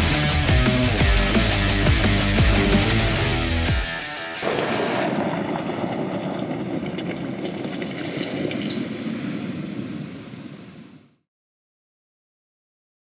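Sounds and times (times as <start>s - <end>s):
steady vehicle noise: 0.0s - 8.8s.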